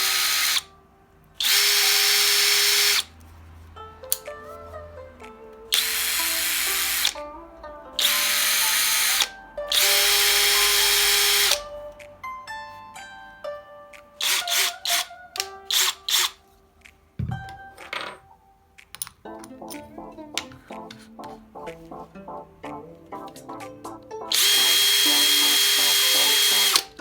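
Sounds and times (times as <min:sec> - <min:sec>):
short sharp drill bursts: 0:00.0 - 0:00.6, 0:01.4 - 0:03.1, 0:08.0 - 0:11.6, 0:14.2 - 0:15.1, 0:24.3 - 0:26.9
power drill whining: 0:00.0 - 0:00.7, 0:01.4 - 0:03.1, 0:05.7 - 0:07.2, 0:08.0 - 0:11.6, 0:14.2 - 0:15.1, 0:15.7 - 0:16.4, 0:24.3 - 0:27.0.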